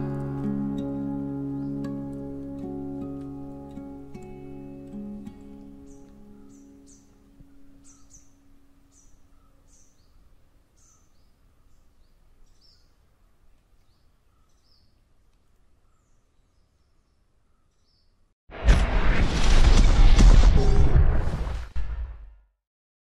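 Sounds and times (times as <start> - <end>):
birds chirping: 5.3 - 15.1, 15.7 - 18.3
loud burst: 18.5 - 22.4.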